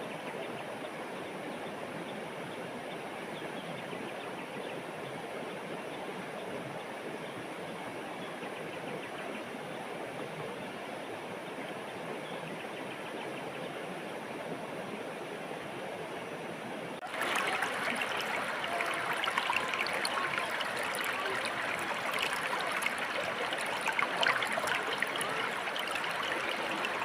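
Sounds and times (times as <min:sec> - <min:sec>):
water rushing over stones: 0:17.0 - 0:27.0.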